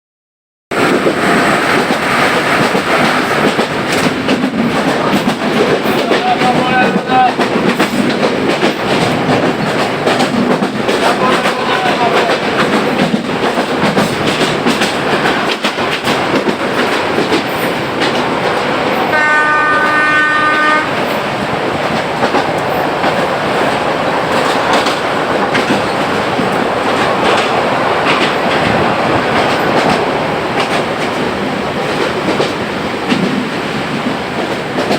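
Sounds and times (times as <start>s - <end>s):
train wheels clattering on track: 0.7s - 34.9s
train horn: 11.1s - 12.3s, 19.1s - 21.2s.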